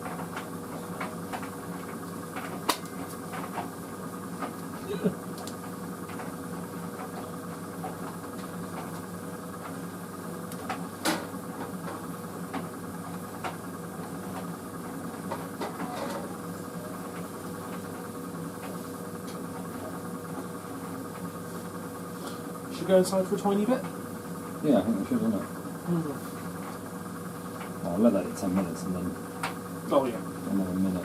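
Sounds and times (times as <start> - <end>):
tumble dryer motor hum: 0.0 - 31.0.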